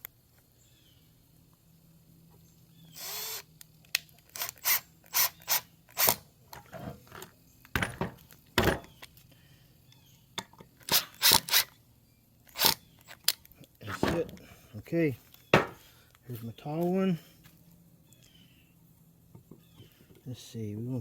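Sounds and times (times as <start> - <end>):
wood and tools scraping and knocking: 6.0 - 9.1, 13.0 - 14.6, 15.4 - 16.0, 19.3 - 20.3.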